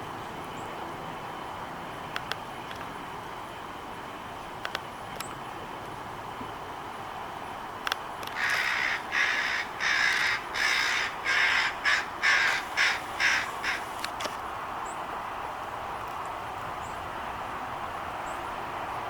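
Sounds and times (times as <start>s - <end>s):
crows cawing: 8.4s - 14.0s.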